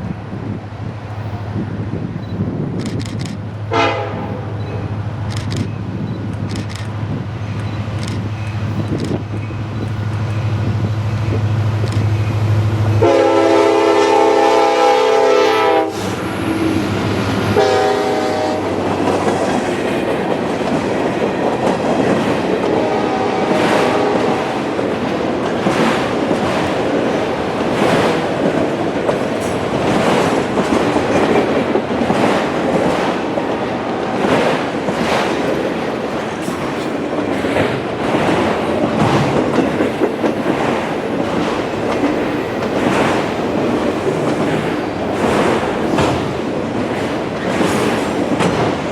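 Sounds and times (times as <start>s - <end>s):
locomotive engine hum: 0.0s - 48.9s
train air horn: 3.7s - 4.6s, 13.0s - 16.2s, 17.4s - 18.8s, 22.7s - 24.6s
wheels clacking over rail joints: 16.0s - 48.9s.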